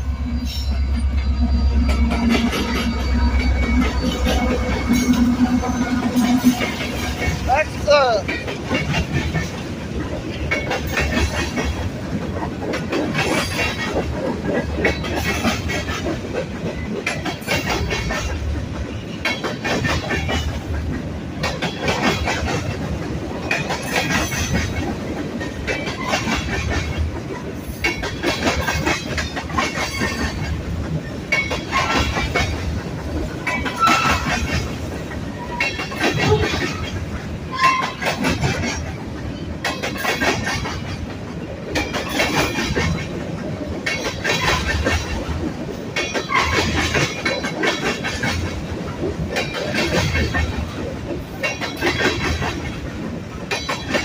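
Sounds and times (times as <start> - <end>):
freight train wheels clattering: 0.0 - 54.0.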